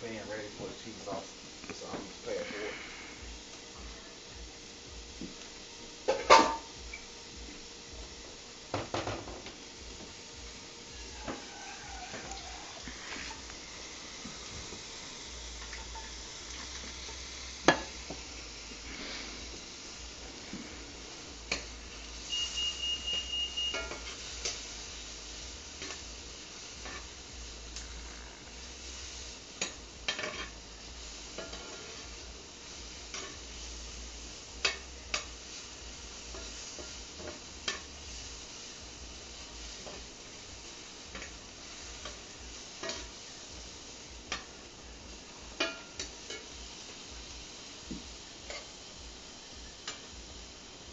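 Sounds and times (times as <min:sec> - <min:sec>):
food sizzling in a pan: 0:00.0 - 0:50.9
high beeps: 0:22.3 - 0:23.9.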